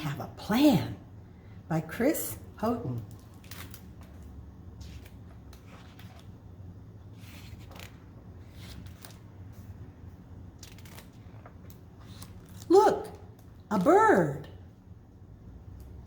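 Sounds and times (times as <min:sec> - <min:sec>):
low room hum: 0:00.0 - 0:16.0
paper pages rustling: 0:03.0 - 0:09.9, 0:10.5 - 0:12.7
light clicks of book handling: 0:07.2 - 0:09.8.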